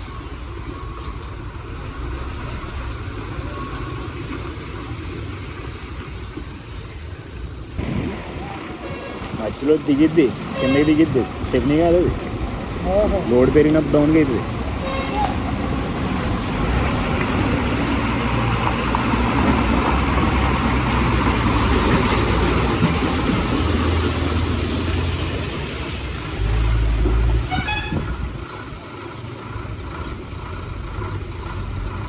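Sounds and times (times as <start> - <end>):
heavy truck engine straining: 0.0 - 32.0
truck horn toot: 8.6 - 11.7, 14.7 - 15.5, 27.4 - 28.3.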